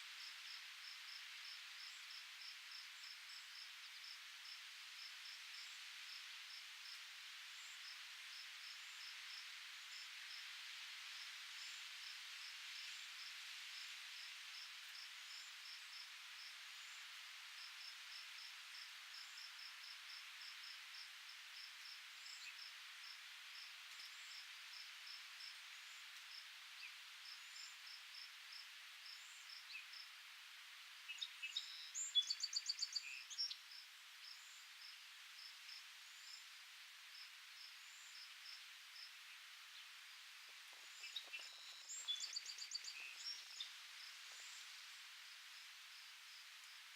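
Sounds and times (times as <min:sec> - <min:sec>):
breeze hiss: 0:00.0 - 0:46.9
insect chirping: 0:12.7 - 0:30.2, 0:31.1 - 0:46.9.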